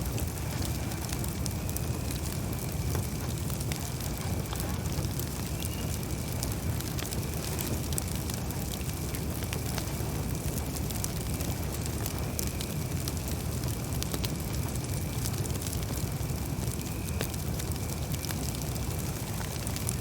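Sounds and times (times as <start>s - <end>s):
campfire flames rushing: 0.0s - 20.0s
wood crackling and popping: 0.0s - 20.0s.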